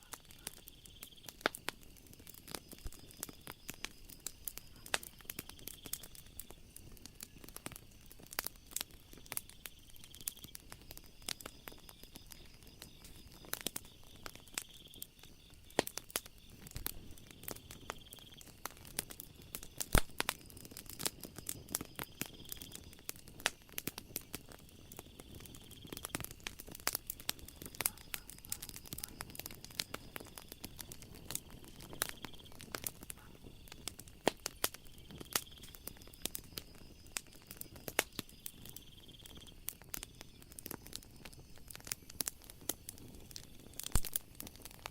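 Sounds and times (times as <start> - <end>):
faint high insect trill: 0.0 - 44.9
wood fire crackling and popping: 0.0 - 44.9.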